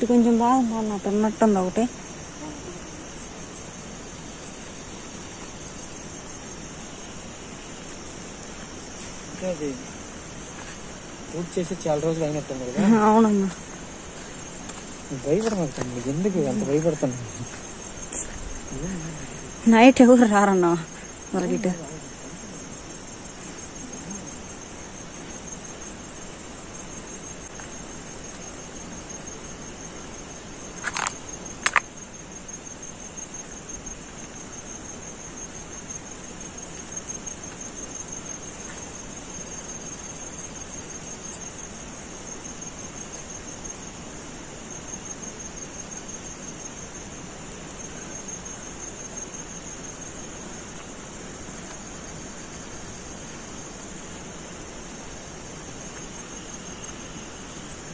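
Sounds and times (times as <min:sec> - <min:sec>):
background hiss: 0:00.0 - 0:57.9
crickets chirring: 0:00.0 - 0:57.9
sharp clicks: 0:30.8 - 0:31.9.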